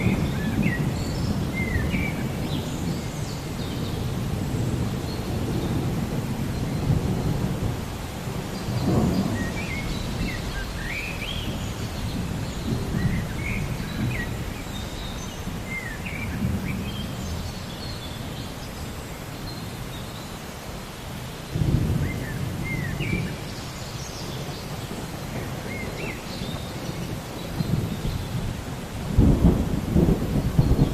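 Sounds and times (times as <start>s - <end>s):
thunder rumbling: 0.0s - 17.6s, 21.5s - 23.5s, 24.3s - 30.9s
birds chirping: 8.5s - 28.8s.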